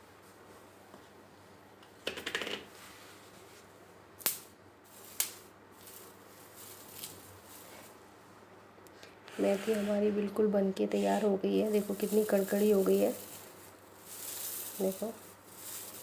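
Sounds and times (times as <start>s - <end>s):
dried leaves crackling: 4.2s - 8.1s, 10.9s - 16.0s.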